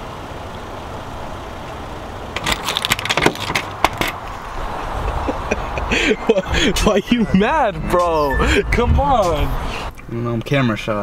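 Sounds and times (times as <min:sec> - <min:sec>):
car engine idling: 0:00.0 - 0:11.0
sharp clicks and rattles: 0:02.4 - 0:04.3.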